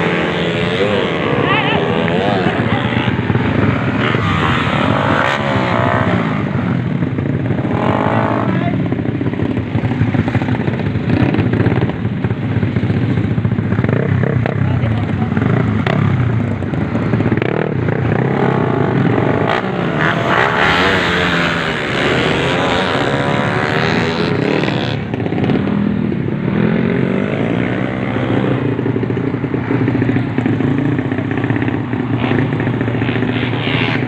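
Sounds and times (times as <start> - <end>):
motorcycle engines revving hard: 0.0 - 34.0.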